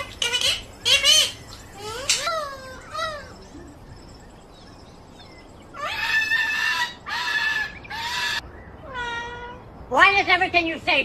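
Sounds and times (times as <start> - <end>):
parrot calling: 0.0 - 3.9, 5.7 - 9.7.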